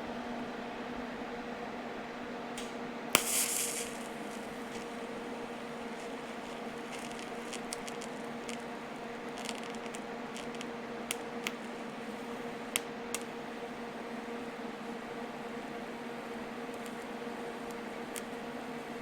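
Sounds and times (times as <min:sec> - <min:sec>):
welding crackles: 0:02.6 - 0:13.8, 0:16.0 - 0:19.0
welding machine humming: 0:02.6 - 0:19.0.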